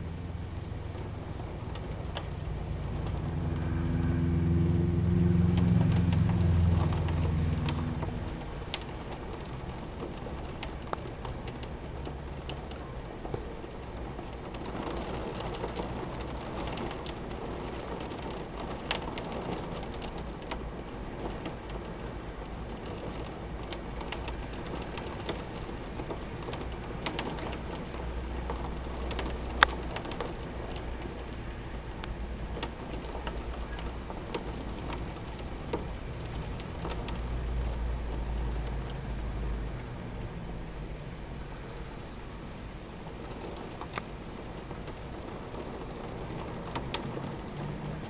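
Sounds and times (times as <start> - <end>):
low rumble: 0.0 - 13.0
heavy rain pouring: 0.0 - 48.0
raindrops clicking on surface: 0.0 - 48.0.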